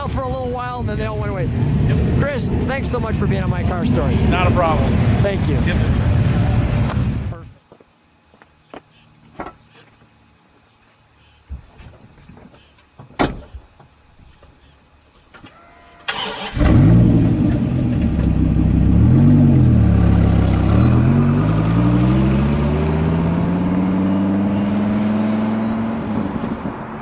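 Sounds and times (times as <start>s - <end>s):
car engine starting and revving: 16.1s - 27.0s.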